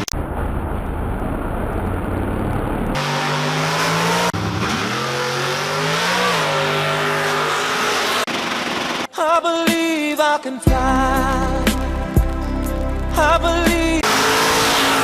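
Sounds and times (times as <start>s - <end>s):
car engine deep rumble: 0.0s - 7.7s
car engine revving up: 0.7s - 9.1s, 14.0s - 15.0s.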